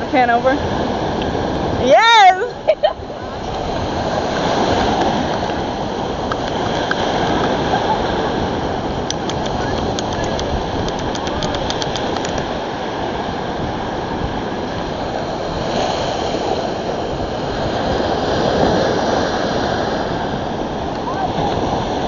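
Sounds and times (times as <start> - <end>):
ocean surf: 0.0 - 22.0
wind on microphone: 0.0 - 22.0
light clicks: 9.1 - 12.5.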